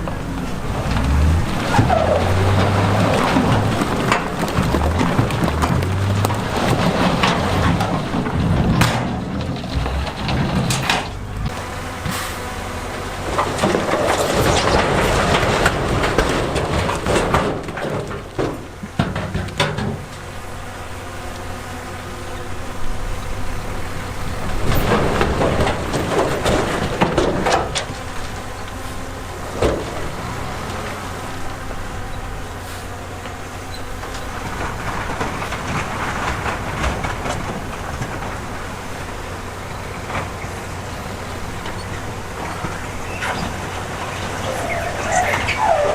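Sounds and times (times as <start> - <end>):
heavy diesel machinery running: 0.0 - 45.9
stone scraping and clattering: 0.8 - 11.6.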